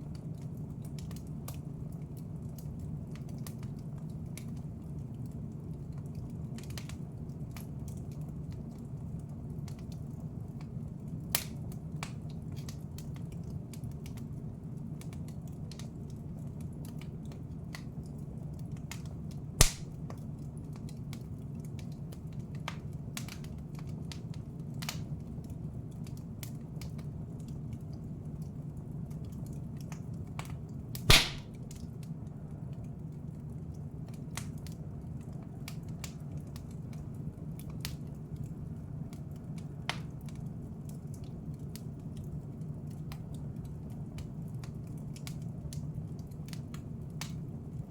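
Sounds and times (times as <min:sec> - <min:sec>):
wood fire crackling: 0:00.0 - 0:47.9
fire pops: 0:19.6 - 0:21.2, 0:30.9 - 0:31.9
steady low background noise: 0:31.1 - 0:31.8.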